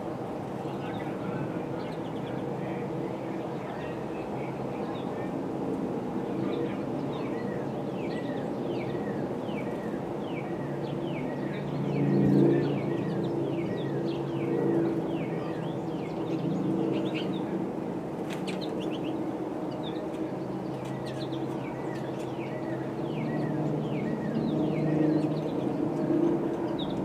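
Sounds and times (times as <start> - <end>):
small birds chirping: 6.4 - 17.6, 18.2 - 27.0.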